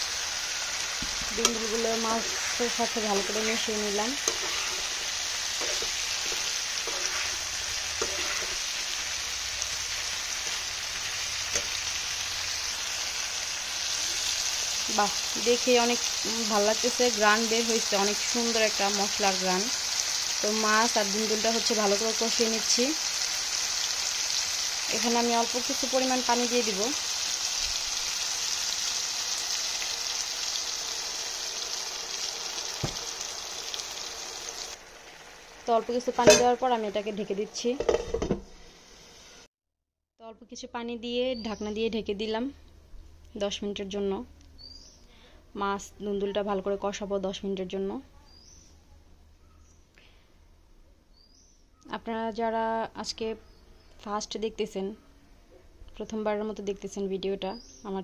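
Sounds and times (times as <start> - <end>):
food sizzling in hot oil: 0.0 - 39.5.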